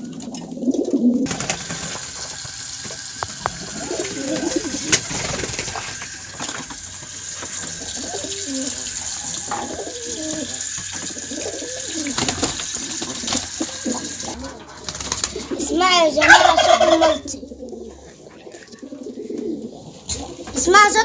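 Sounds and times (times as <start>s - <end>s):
pigeons cooing: 0.0s - 21.0s
steady hiss: 1.3s - 14.4s.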